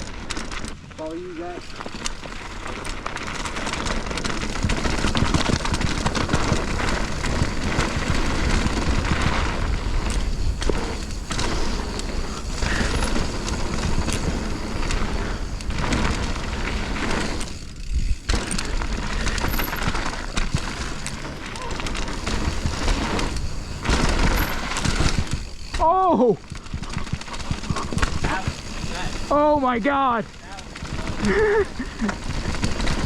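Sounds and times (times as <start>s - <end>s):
bike rattling and clattering: 0.0s - 33.0s
tyres rolling over dirt and rock: 0.0s - 33.0s
wind buffeting on microphone: 4.5s - 21.0s.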